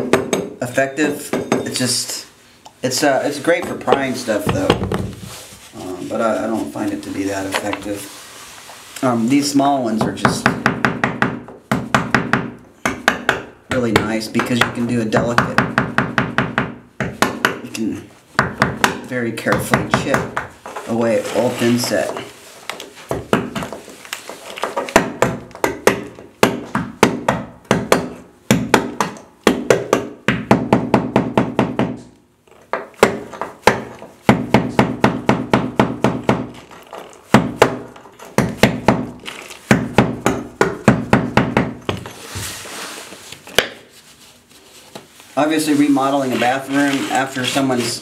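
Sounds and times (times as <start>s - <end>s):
hammer striking chisel: 0.0s - 0.6s, 1.3s - 1.8s, 10.4s - 17.6s, 24.7s - 32.1s, 37.3s - 42.1s.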